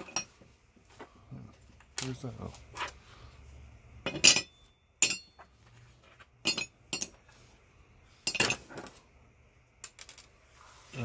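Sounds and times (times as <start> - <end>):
metal scrap parts clinking: 0.0 - 0.4, 4.0 - 5.4, 6.4 - 7.2, 8.2 - 8.9.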